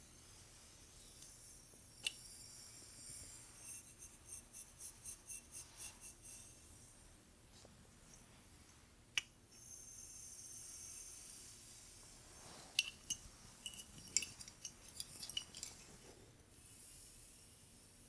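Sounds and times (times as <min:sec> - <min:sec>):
brush strokes through hair: 0:11.1 - 0:13.6.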